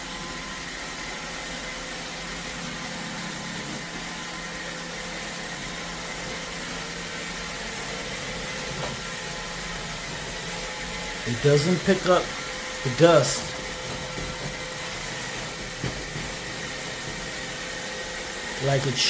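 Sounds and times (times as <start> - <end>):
robot vacuum running: 0.0 - 19.0.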